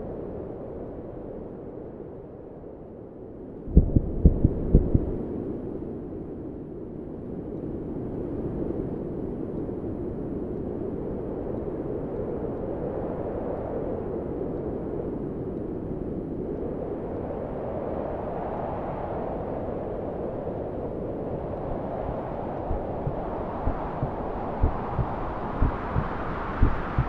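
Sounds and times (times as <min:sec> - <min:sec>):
steady low rumbling noise: 0:03.7 - 0:05.4, 0:20.7 - 0:27.0.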